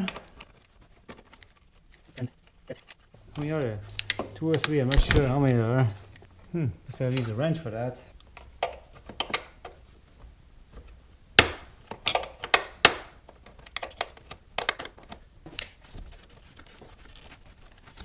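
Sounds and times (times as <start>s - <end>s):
wrench clicking on bolts: 12.0s - 12.9s.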